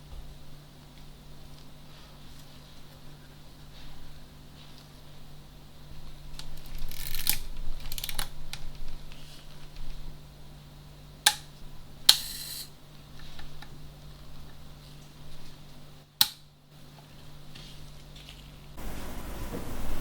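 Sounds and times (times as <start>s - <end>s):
camera click with short rasp: 12.1s - 12.7s
film camera clicks: 12.1s - 12.7s.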